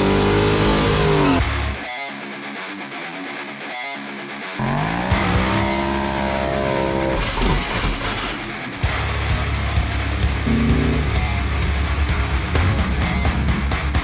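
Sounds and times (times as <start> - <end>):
car engine revving: 0.0 - 1.8, 4.6 - 8.0, 9.6 - 11.9
guitar music: 0.0 - 7.2, 8.7 - 14.0
sharp hit: 10.4 - 11.8.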